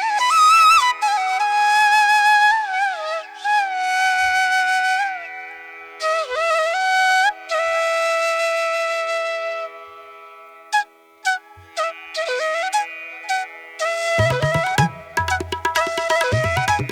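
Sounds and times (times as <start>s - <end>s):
flute playing long notes: 10.8s - 16.9s.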